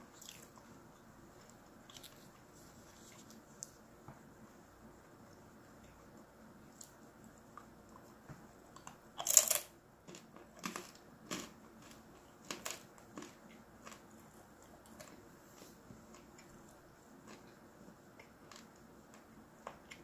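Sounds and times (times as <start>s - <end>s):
chewing dried mushroom crunches: 8.8s - 16.4s.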